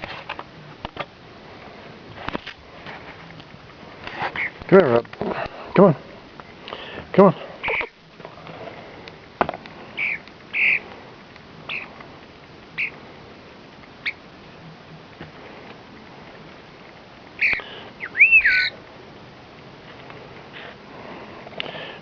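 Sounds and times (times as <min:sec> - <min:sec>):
bird calling: 0:04.2 - 0:04.7, 0:07.6 - 0:08.0, 0:09.8 - 0:11.0, 0:11.6 - 0:12.0, 0:12.7 - 0:13.0, 0:14.0 - 0:14.3, 0:17.4 - 0:18.8
whistled bird note: 0:17.4 - 0:18.8.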